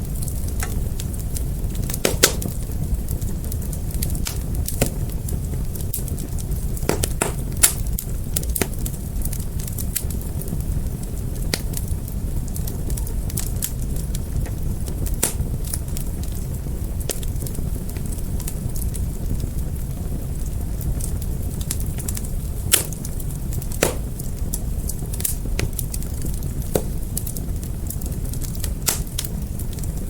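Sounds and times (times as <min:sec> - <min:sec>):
fire crackling and popping: 0:00.0 - 0:30.0
wood fire rumbling: 0:00.0 - 0:30.0.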